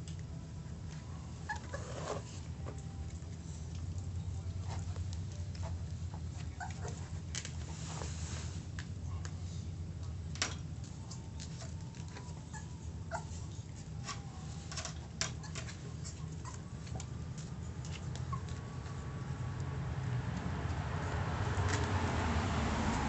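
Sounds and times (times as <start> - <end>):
steady low hum: 0.0 - 23.0
puppy whining: 1.0 - 7.3, 10.9 - 19.3.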